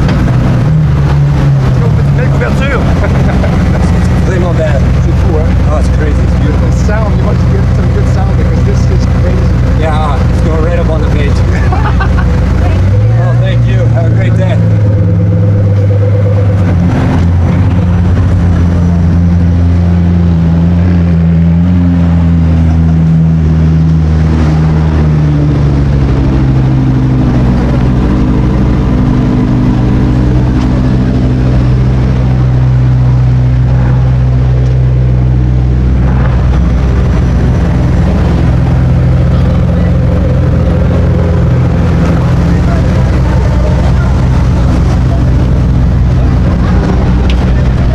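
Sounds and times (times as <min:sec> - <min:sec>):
sports car engine running: 0:00.0 - 0:47.9.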